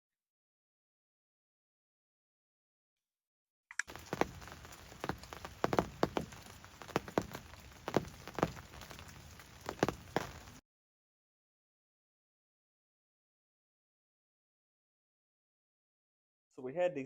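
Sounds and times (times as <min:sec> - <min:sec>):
heavy raindrops tapping: 0:03.8 - 0:10.6
rain falling: 0:03.8 - 0:10.6.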